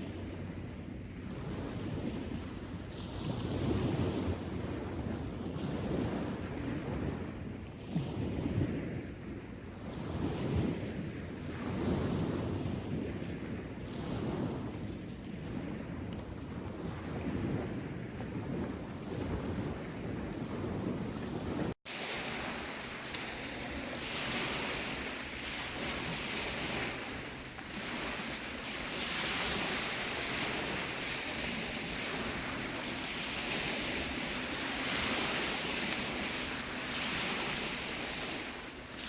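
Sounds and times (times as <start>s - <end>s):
rushing wind: 0.0s - 39.0s
rushing water: 21.9s - 39.0s.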